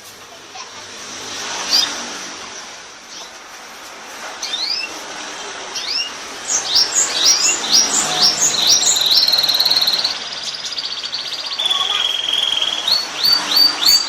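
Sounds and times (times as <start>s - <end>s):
canary singing: 1.6s - 2.0s, 4.4s - 5.0s, 5.7s - 14.0s.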